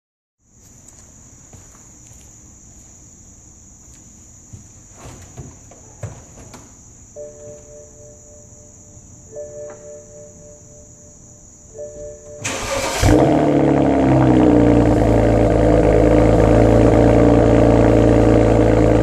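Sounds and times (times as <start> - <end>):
insects chirring: 0.4 - 19.0
steady tone of a few notes: 7.1 - 17.9.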